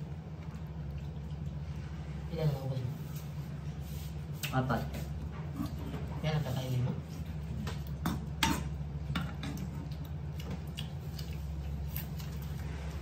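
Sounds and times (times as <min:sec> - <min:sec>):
steady low hum: 0:00.0 - 0:13.0
cucumber crunching while chewed: 0:09.6 - 0:12.8.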